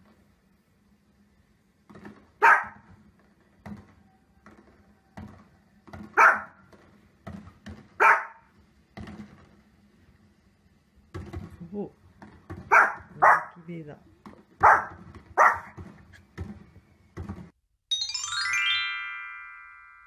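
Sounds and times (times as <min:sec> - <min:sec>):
small dog barking: 0:02.4 - 0:02.9, 0:06.2 - 0:06.6, 0:08.0 - 0:08.5, 0:12.7 - 0:13.6, 0:14.6 - 0:15.8.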